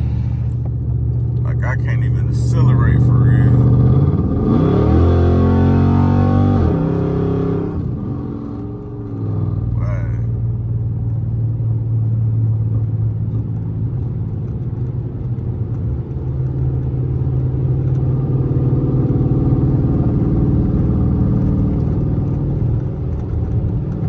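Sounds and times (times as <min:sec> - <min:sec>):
car engine misfiring: 0:00.0 - 0:04.0.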